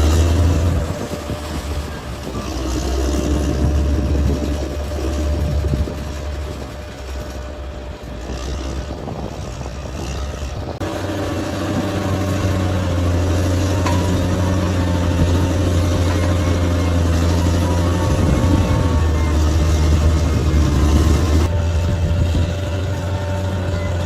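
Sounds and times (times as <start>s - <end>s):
bulldozer diesel engine running: 0.0s - 24.0s.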